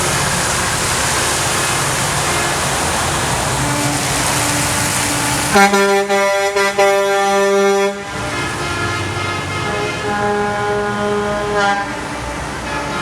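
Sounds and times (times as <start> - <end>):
passing trucks rumbling: 0.0 - 13.0
truck air horn blasts: 1.2 - 13.0.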